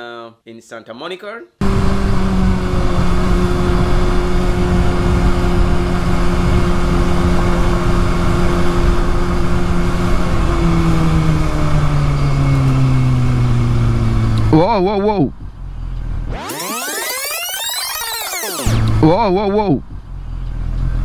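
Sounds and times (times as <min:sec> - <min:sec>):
heavy wind rush: 0:01.6 - 0:16.3
motorcycle engine running: 0:01.6 - 0:16.4, 0:18.7 - 0:21.0.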